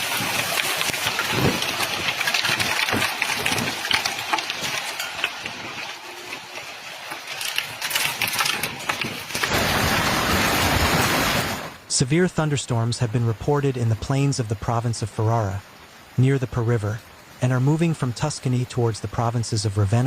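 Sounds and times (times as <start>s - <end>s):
hailstones clattering on hard surfaces: 0.0s - 11.3s
rush of storm noise: 0.0s - 11.9s.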